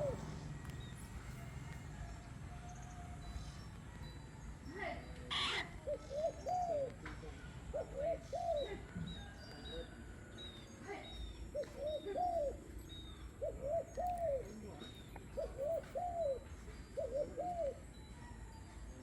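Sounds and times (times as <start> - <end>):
dove cooing: 0.0 - 0.7, 5.3 - 10.3, 11.5 - 18.6.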